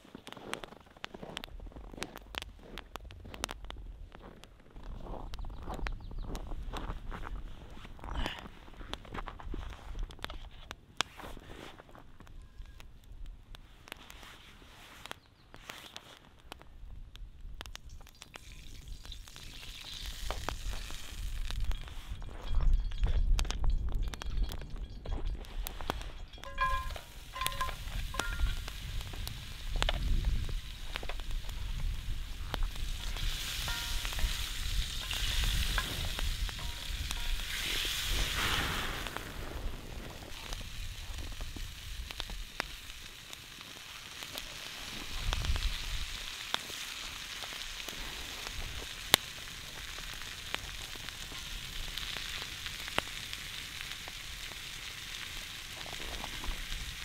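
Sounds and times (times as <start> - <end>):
oil crackling and popping: 0.0 - 57.0
food sizzling in hot oil: 17.8 - 22.2, 25.7 - 57.0
ringing clinks: 22.2 - 28.6.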